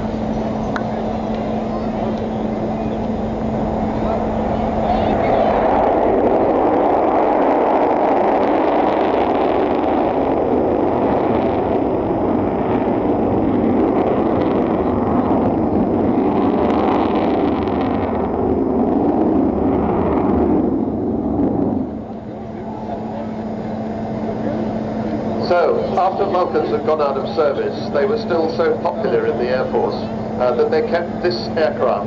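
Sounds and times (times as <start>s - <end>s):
jet engines roaring: 0.0s - 32.0s.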